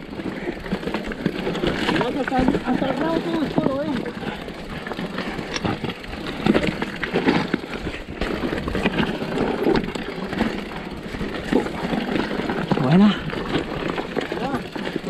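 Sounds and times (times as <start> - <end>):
bike rattling: 0.0 - 15.0
tyres crunching over stones: 0.0 - 15.0
wheels knocking on rocks: 0.0 - 15.0.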